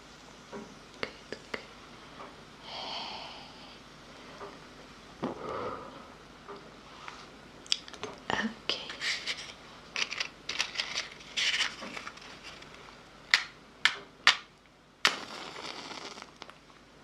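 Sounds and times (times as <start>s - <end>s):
soft hiss: 0.0s - 10.0s, 14.5s - 17.0s.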